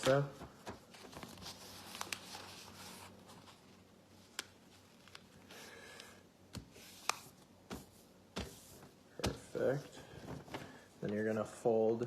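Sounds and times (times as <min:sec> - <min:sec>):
paper being folded: 0:00.0 - 0:05.8.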